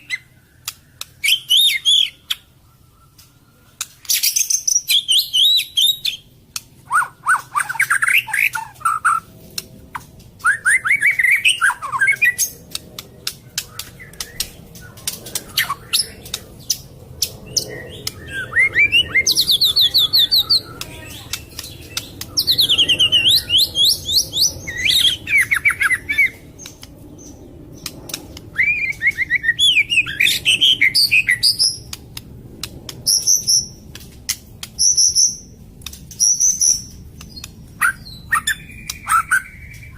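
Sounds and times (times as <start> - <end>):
bird whistling and trilling: 0.0 - 3.4, 4.0 - 9.2, 10.4 - 12.6, 13.3 - 16.8, 17.4 - 27.9, 28.5 - 31.9, 36.1 - 39.9
bird sharp clicking notes: 12.4 - 18.4, 19.2 - 29.3, 31.7 - 39.9.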